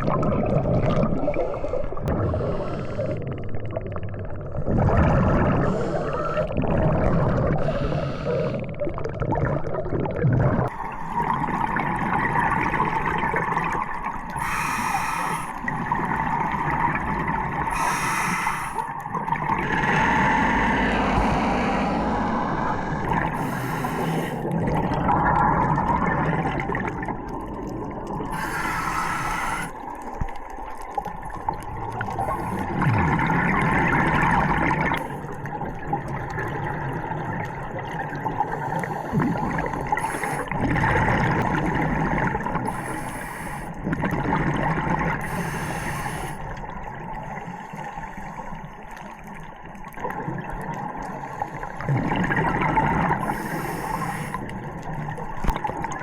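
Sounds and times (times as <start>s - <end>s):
exhaled bubbles rushing: 0.0s - 14.7s, 15.6s - 18.0s, 18.9s - 45.6s, 48.9s - 56.0s
regulator breathing: 7.6s - 8.8s, 14.4s - 15.6s, 17.7s - 19.0s, 19.9s - 24.6s, 28.3s - 29.8s, 45.2s - 46.4s, 53.2s - 54.4s.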